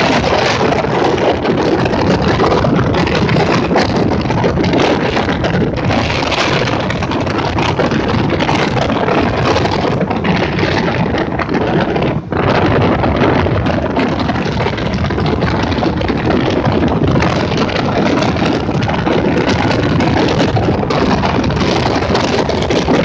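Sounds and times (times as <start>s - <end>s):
motorboat running at speed: 0.0s - 23.0s
wind buffeting microphone: 0.0s - 23.0s.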